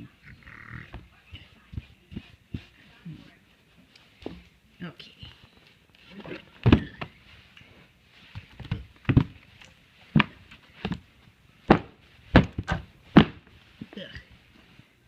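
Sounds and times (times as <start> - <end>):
irregular thunks and knocks: 6.6 - 7.2, 8.4 - 9.5, 10.1 - 11.1, 11.7 - 13.5.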